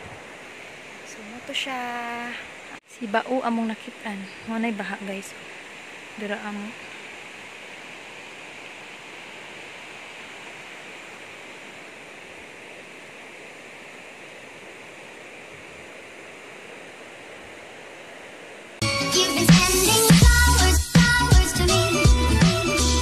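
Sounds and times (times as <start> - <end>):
floodwater rushing: 0.0 - 20.2
loud music: 18.8 - 23.0.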